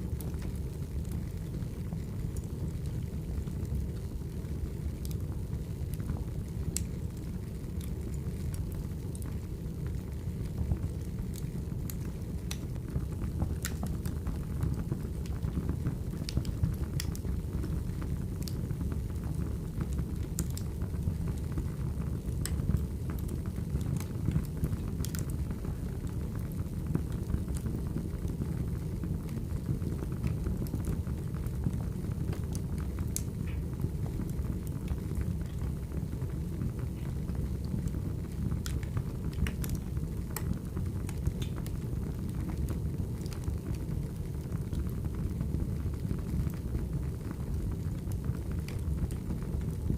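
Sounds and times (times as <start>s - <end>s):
fire crackling and popping: 0.0s - 49.9s
fire low rumble: 0.0s - 49.9s.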